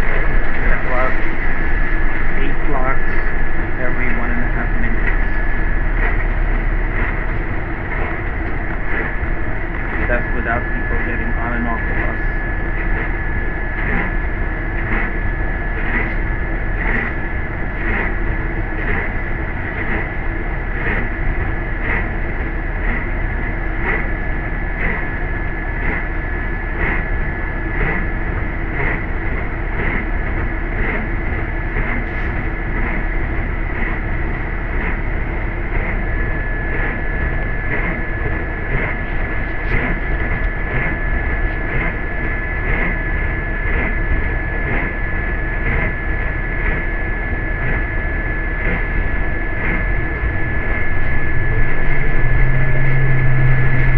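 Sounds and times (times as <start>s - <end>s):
thin high whine: 0.0s - 53.9s
bus engine and road rumble: 49.6s - 53.9s.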